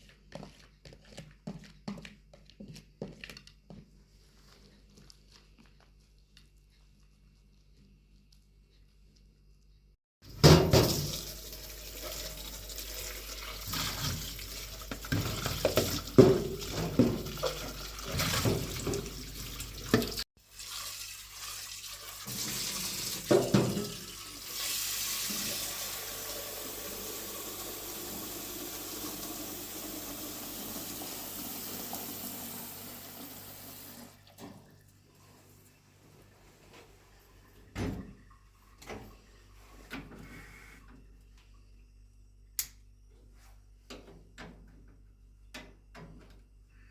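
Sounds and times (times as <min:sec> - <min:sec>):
water pouring and splashing: 0:10.3 - 0:34.8.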